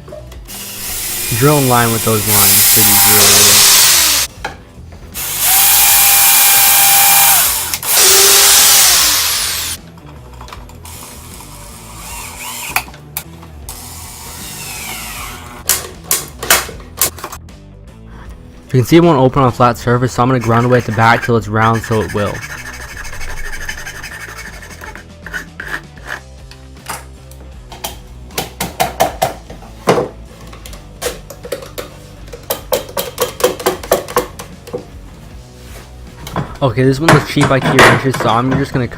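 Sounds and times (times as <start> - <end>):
faint background music: 0.0 - 8.4, 9.2 - 38.9
electric drill whining: 0.5 - 4.3, 5.2 - 9.8, 11.0 - 12.9, 13.7 - 15.6.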